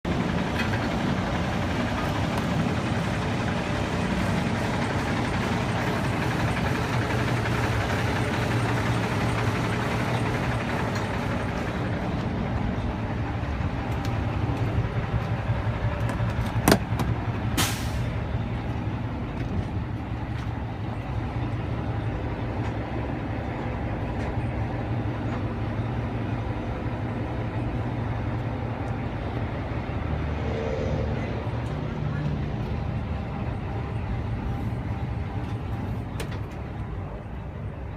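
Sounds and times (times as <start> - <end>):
diesel engine idling: 0.0 - 37.9
short hiss of air: 17.6 - 18.1.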